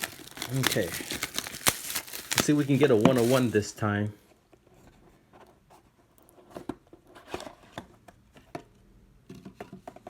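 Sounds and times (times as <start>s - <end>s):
trading cards being handled: 0.0s - 3.6s.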